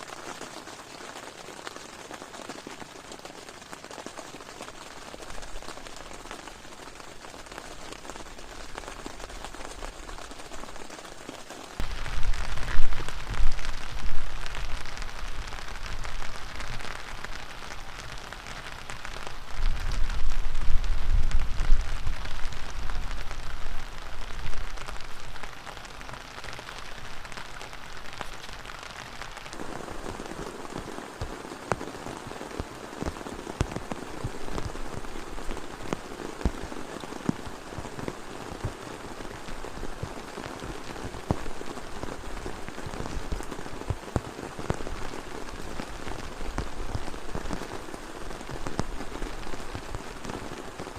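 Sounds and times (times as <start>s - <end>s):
heavy rain: 0.0s - 50.9s
sharp raindrop taps: 0.0s - 50.9s
wind rumbling on microphone: 11.8s - 25.6s.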